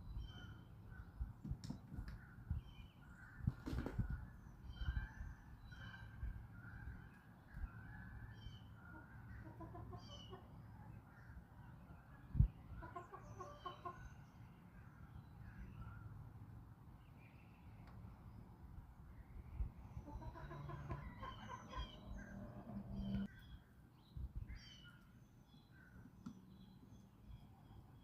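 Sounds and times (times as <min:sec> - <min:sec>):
small birds chirping: 0:00.0 - 0:28.0
chickens clucking: 0:08.9 - 0:10.5, 0:12.8 - 0:14.1, 0:20.0 - 0:23.3.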